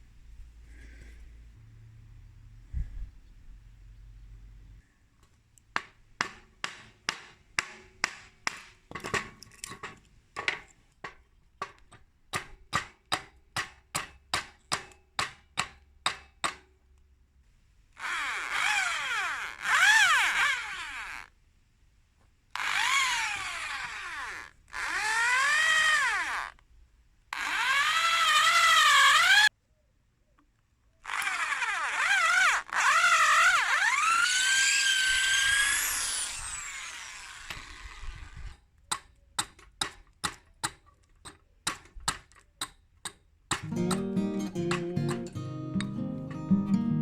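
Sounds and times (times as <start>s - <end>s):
whining power tool on wood: 18.0s - 21.3s, 22.6s - 26.5s, 27.4s - 29.5s, 31.0s - 38.5s.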